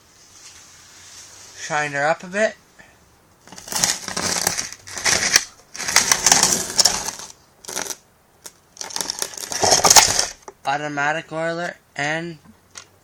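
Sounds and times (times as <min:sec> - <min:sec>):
chainsaw handling clattering: 0:08.8 - 0:10.4.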